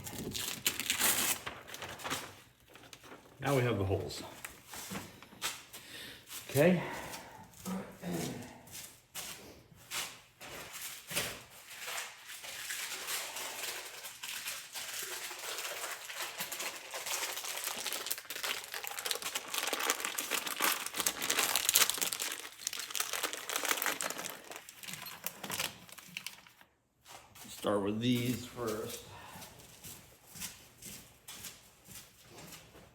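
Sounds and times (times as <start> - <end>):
plastic packaging crinkling: 0.0 - 3.5, 11.6 - 26.7.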